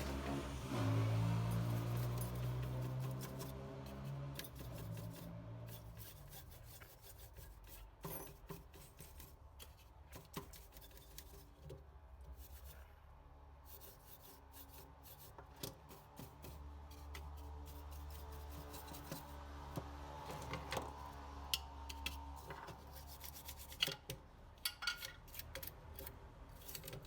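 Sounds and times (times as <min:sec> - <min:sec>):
scrubbing on circuit board: 0:01.2 - 0:11.7, 0:12.3 - 0:12.9, 0:13.7 - 0:19.4, 0:22.3 - 0:24.1.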